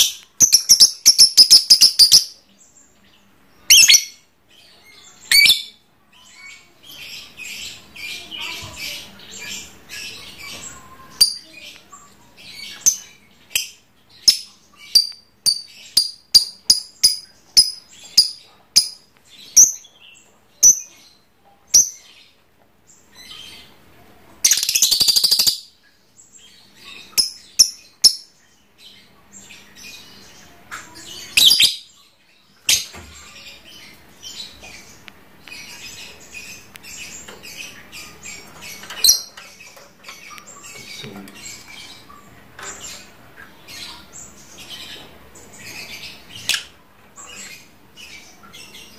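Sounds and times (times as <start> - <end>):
lovebird chattering and trilling: 0.0 - 2.4, 3.6 - 4.2, 5.2 - 5.8, 12.5 - 19.8, 21.7 - 22.1, 24.4 - 25.8, 26.8 - 28.3, 30.9 - 32.0.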